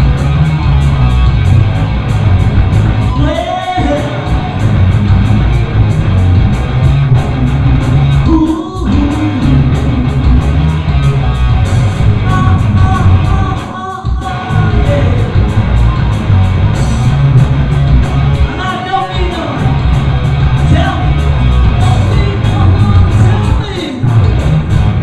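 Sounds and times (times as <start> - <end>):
live hard rock band playing: 0.0 - 25.0
person singing: 3.1 - 4.6, 8.2 - 10.0, 12.2 - 15.5, 20.7 - 24.0.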